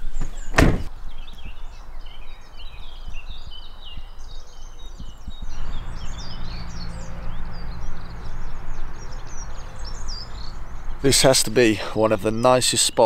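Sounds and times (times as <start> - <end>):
birds singing and chirping: 0.0 - 13.0.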